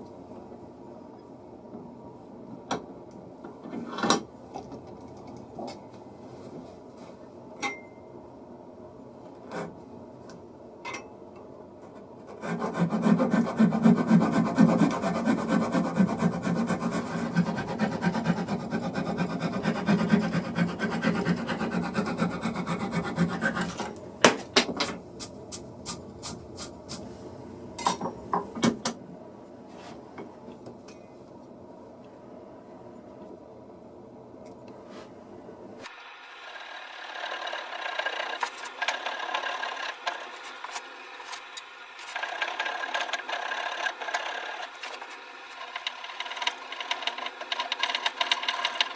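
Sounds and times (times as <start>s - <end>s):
rasp rubbing on wood: 12.3s - 23.9s, 37.1s - 48.9s.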